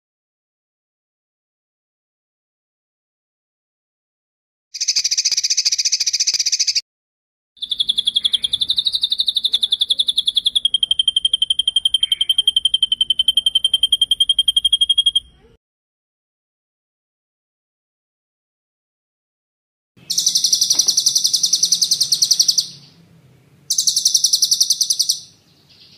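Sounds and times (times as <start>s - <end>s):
rolling bird trill: 7.6s - 15.5s, 20.0s - 25.9s
buzzy bird rattle: 20.1s - 25.2s.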